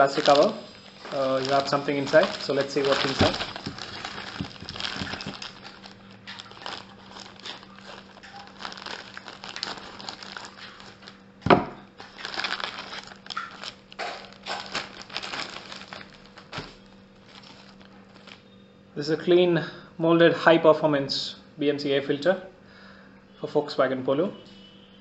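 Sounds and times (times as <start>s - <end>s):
plastic wrapping crinkling: 0.0s - 18.6s.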